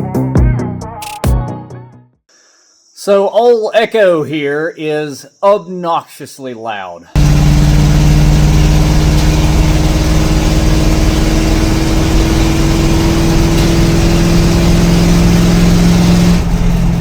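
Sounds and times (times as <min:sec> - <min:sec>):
loud engine with open exhaust: 0:07.2 - 0:17.0.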